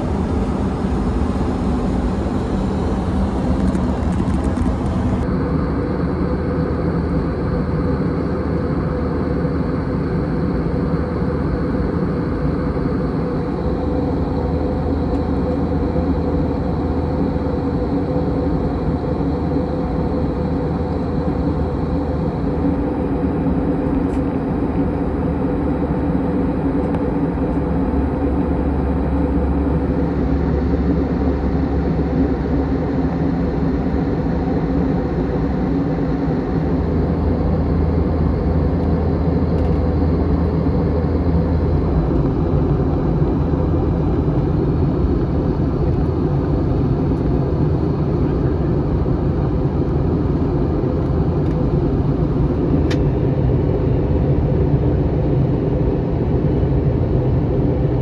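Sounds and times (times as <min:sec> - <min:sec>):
airplane cabin drone: 0:00.0 - 0:58.0.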